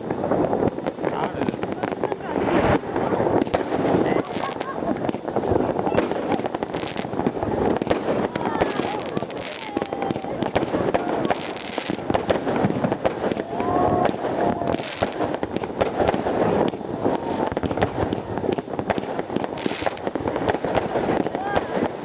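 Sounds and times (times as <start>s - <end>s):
fireworks crackling and popping: 0.0s - 22.0s.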